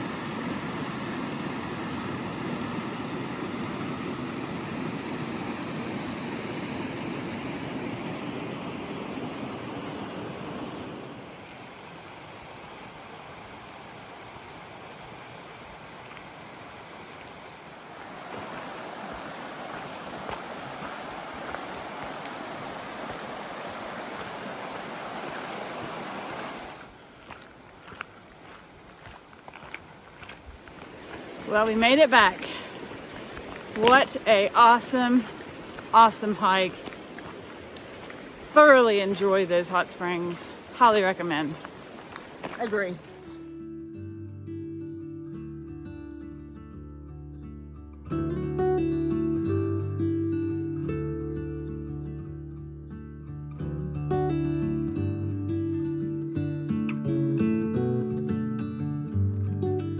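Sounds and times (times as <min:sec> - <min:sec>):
creek rapids roaring: 0:00.0 - 0:43.4.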